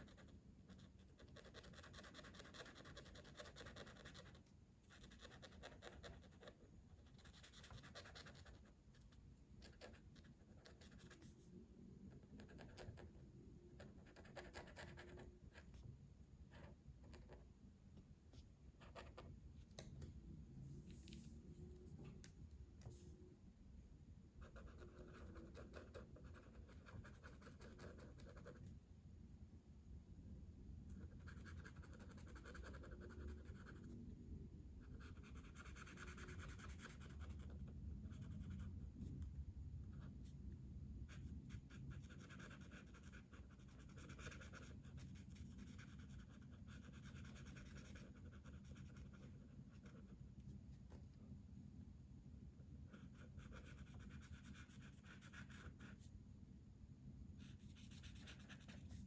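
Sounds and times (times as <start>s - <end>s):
coloring strokes scratching on paper: 0.0s - 11.4s, 41.1s - 50.1s, 57.4s - 59.0s.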